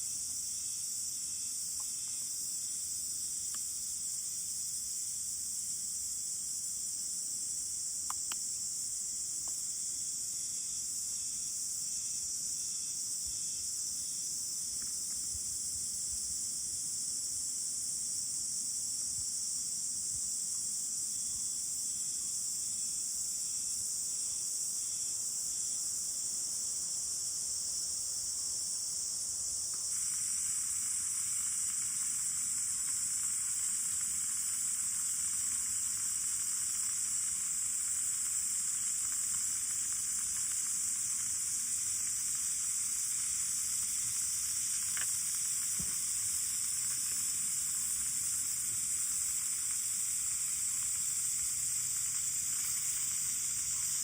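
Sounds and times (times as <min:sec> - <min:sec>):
high-pitched insect chorus: 0:00.0 - 0:54.0
faint clicks: 0:44.7 - 0:46.0.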